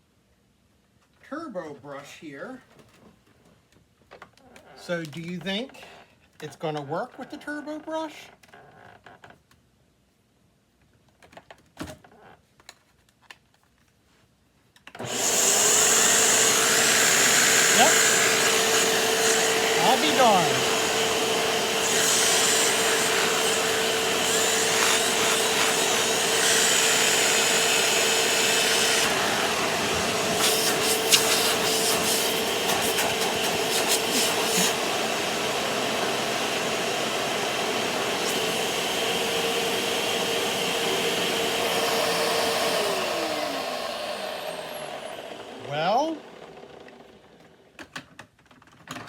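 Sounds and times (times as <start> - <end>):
vacuum cleaner running: 15.0 - 47.7.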